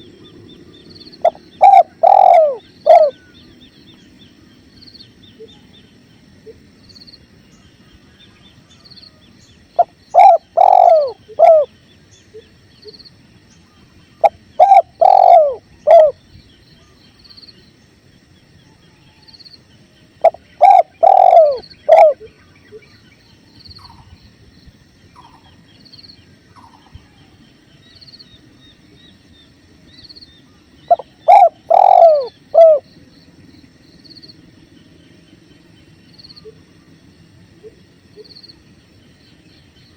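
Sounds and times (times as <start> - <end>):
dove cooing: 0.0 - 3.4, 9.8 - 11.8, 14.2 - 16.2, 20.2 - 22.4, 30.8 - 32.9.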